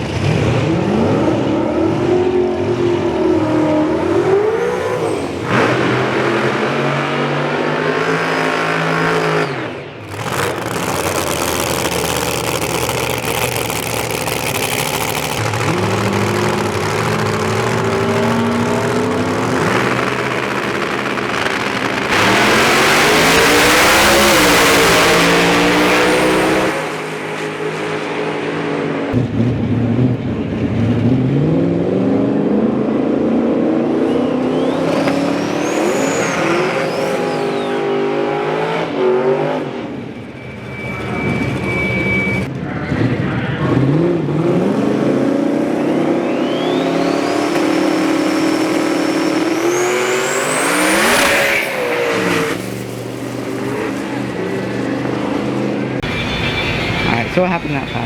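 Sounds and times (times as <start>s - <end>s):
drag racing cars accelerating: 0.0s - 58.0s
thin rising whine: 10.1s - 28.5s, 34.4s - 38.4s, 39.5s - 42.5s, 45.8s - 58.0s.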